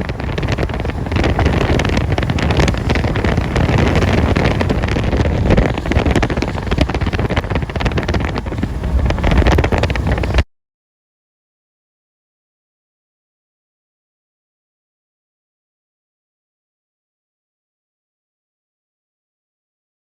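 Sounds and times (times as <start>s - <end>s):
strong wind buffeting microphone: 0.0s - 10.5s.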